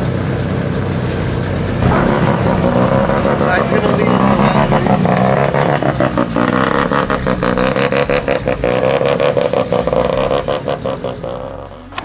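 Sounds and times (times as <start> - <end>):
car engine revving loudly: 1.7 - 12.0.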